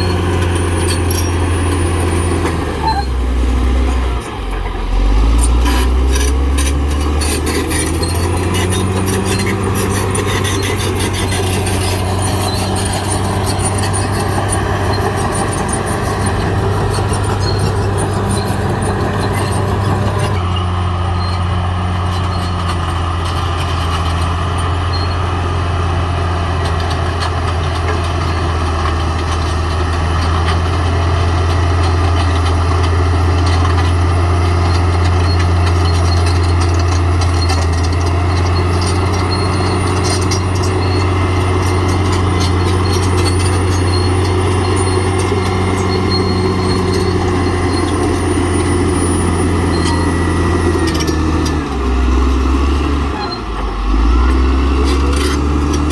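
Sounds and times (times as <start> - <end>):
bulldozer diesel engine droning: 0.0 - 55.9.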